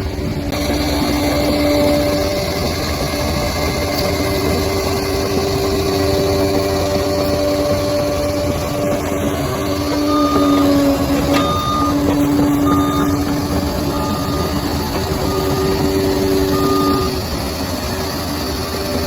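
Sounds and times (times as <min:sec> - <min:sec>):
bulldozer diesel engine: 0:00.0 - 0:19.0
reversing alarm beeps: 0:00.5 - 0:19.0.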